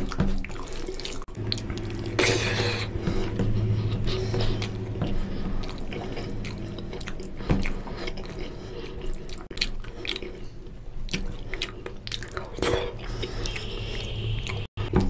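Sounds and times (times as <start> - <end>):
chewing food: 0.0 - 15.0
low hum: 1.2 - 12.0.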